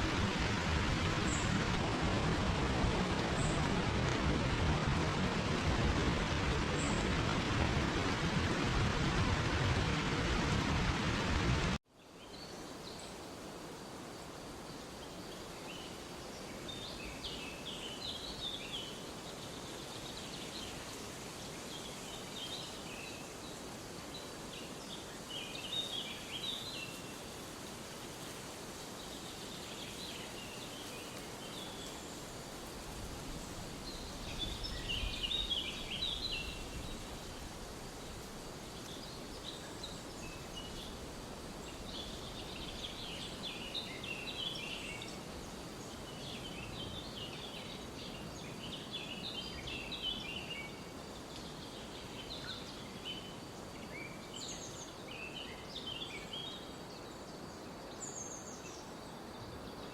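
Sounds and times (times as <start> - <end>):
low rumble: 0.0 - 11.8
background hiss: 0.0 - 59.9
songbirds chirping: 12.0 - 59.9.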